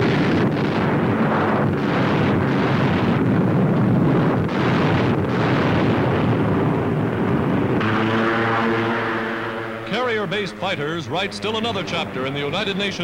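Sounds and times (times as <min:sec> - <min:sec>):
bombs exploding: 0:00.0 - 0:07.8.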